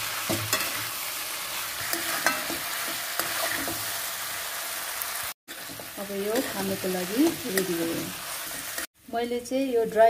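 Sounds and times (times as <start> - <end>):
food sizzling in a pan: 0.0 - 10.0
metal spoon clinking on pan: 1.8 - 2.6.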